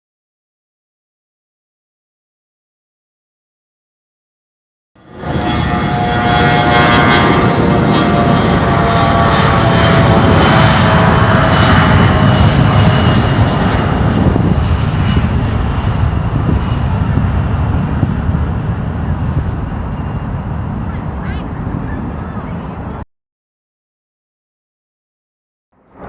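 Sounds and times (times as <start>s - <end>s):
airplane engine whining: 5.0s - 23.1s, 25.8s - 26.0s.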